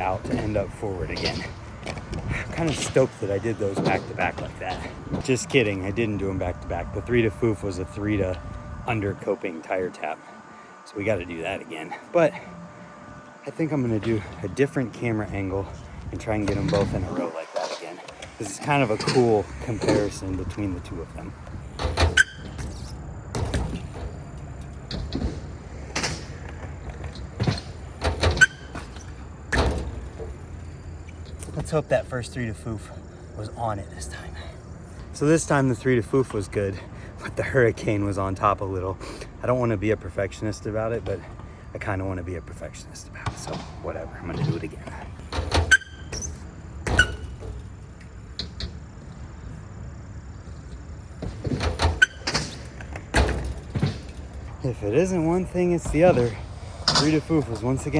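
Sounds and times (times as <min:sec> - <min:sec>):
sharp thumps of wheel landings: 0:00.0 - 0:08.9, 0:14.0 - 0:31.9, 0:43.2 - 0:57.9
bike tyres rolling on concrete: 0:00.0 - 0:57.9
metallic clanks from bike landings: 0:21.8 - 0:30.4, 0:45.3 - 0:47.8, 0:51.2 - 0:54.6.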